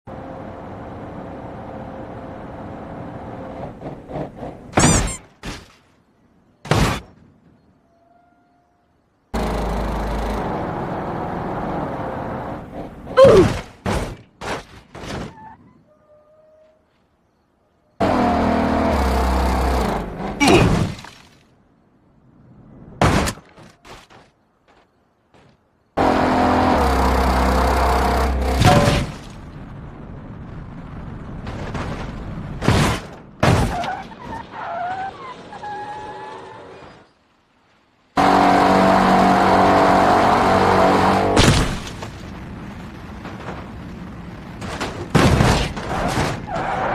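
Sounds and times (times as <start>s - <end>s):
rough vehicle noise: 0.1s - 7.2s, 9.3s - 15.8s, 18.0s - 21.6s, 23.0s - 46.9s
car engine running: 9.4s - 13.0s, 26.0s - 28.8s, 38.2s - 41.4s.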